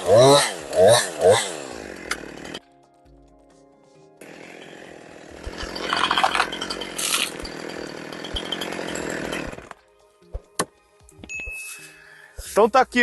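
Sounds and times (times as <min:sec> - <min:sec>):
chainsaw cutting tree trunk: 0:00.0 - 0:02.6, 0:04.2 - 0:09.8.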